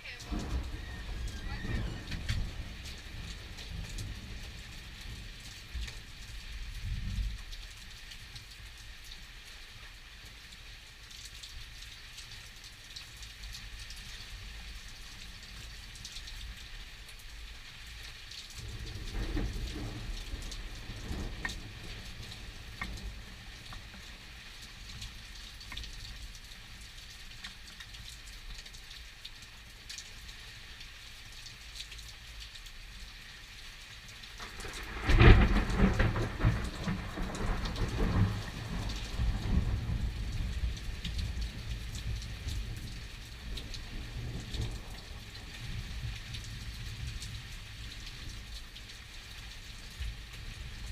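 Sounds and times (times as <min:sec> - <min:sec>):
thunder rumbling: 0:00.0 - 0:05.9, 0:18.6 - 0:23.6, 0:34.4 - 0:46.2
steady rain falling: 0:00.0 - 0:50.9
sharp thunderclap: 0:00.3 - 0:04.4, 0:34.5 - 0:40.7.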